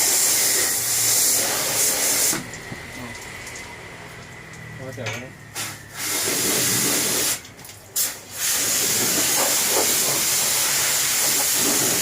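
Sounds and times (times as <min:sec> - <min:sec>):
high-pressure water spray hissing: 0:00.0 - 0:02.6, 0:05.5 - 0:12.0.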